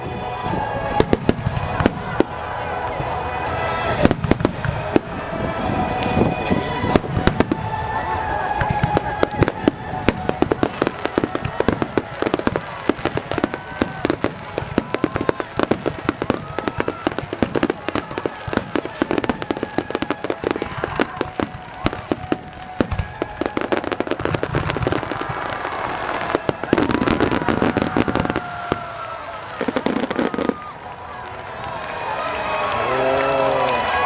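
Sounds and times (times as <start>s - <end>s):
fireworks bursting: 0.0s - 32.8s.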